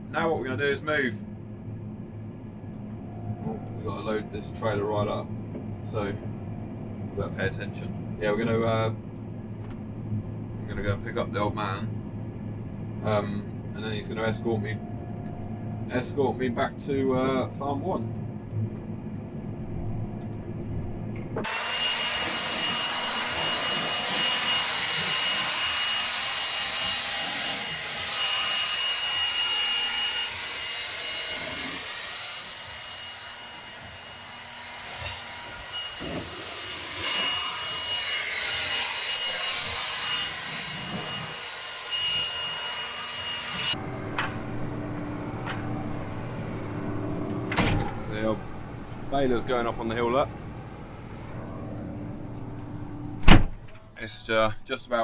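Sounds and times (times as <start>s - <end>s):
low engine hum: 0.0s - 21.5s, 43.8s - 53.6s
high whine: 0.0s - 53.4s
combine harvester rushing hiss: 21.4s - 43.7s.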